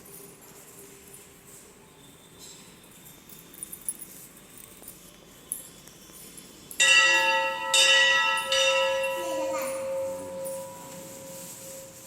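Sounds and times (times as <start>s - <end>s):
temple bell ringing: 6.7s - 12.0s.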